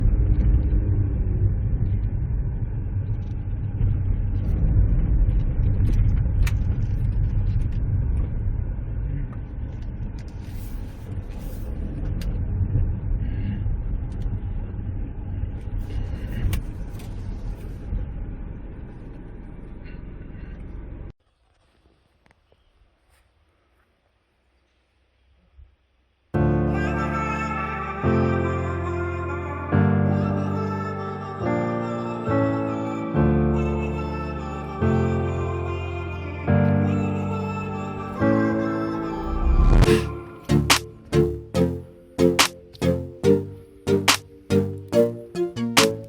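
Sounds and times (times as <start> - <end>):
car engine and road rumble: 0.0 - 21.2.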